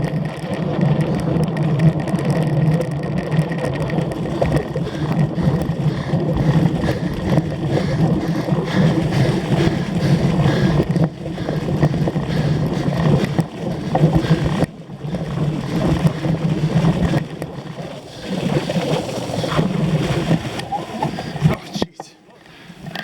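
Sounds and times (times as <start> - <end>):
bike rattles and knocks: 0.0 - 17.7
bike tyres on rough ground: 0.0 - 21.6.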